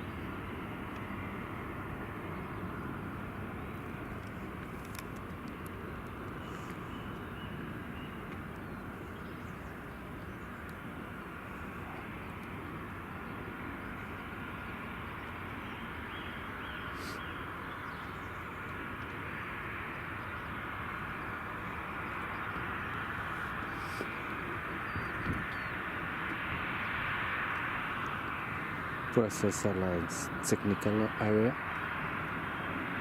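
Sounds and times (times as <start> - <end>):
jet engines rumbling: 0.0 - 33.0.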